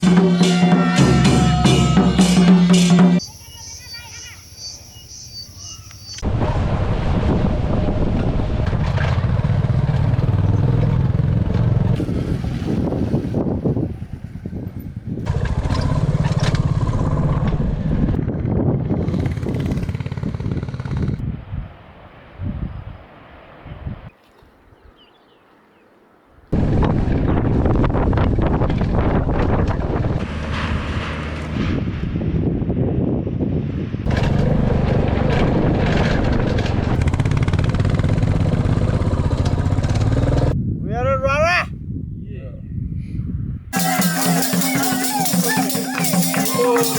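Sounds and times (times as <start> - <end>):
motorcycle engine running: 8.4 - 13.0, 15.2 - 21.2, 36.3 - 40.6.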